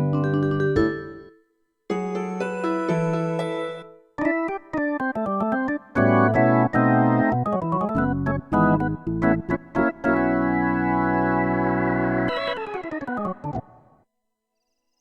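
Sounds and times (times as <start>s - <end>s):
synthesizer electric-piano tone: 5.1s - 13.8s.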